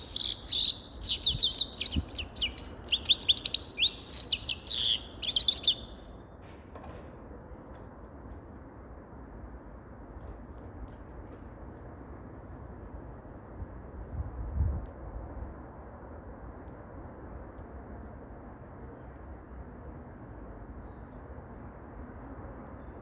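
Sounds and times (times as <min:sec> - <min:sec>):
finch chirping and trilling: 0:00.0 - 0:06.0
low background noise: 0:00.0 - 0:23.0.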